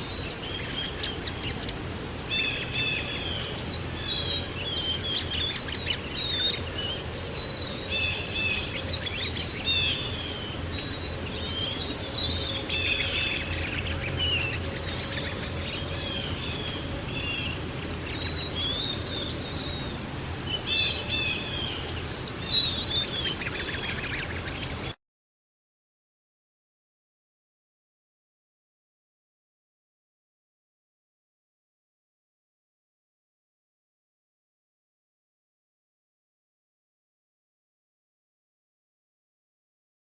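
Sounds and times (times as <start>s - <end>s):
songbirds chirping and twittering: 0.0s - 25.0s.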